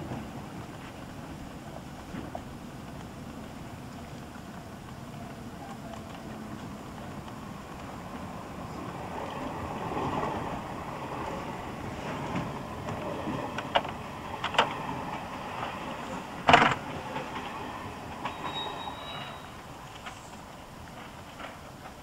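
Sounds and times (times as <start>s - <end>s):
train running rumble: 0.0s - 22.0s
faint high squeal: 18.2s - 20.4s.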